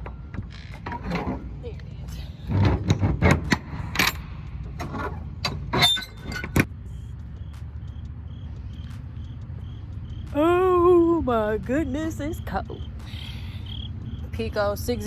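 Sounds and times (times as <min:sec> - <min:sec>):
metal clatters and knocks: 0:00.0 - 0:01.7, 0:02.4 - 0:06.7
diesel engine idling: 0:06.6 - 0:15.0
faint regular high ticking: 0:06.6 - 0:15.0.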